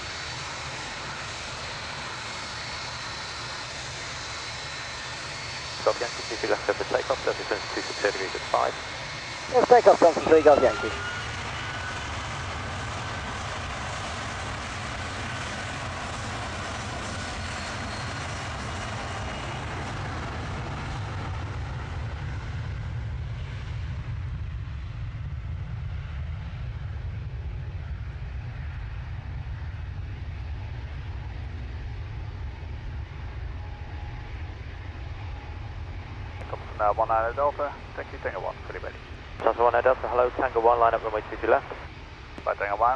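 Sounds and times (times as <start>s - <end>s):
jet engines rumbling at take-off: 0.0s - 42.9s.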